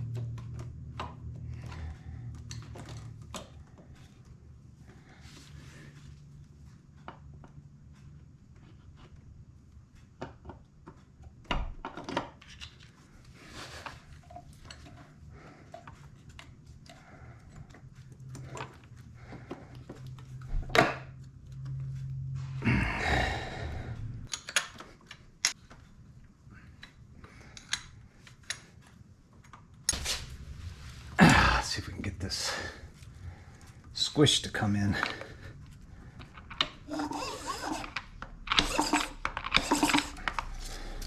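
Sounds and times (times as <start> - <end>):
metal parts and tools clinking: 36.2 - 41.0.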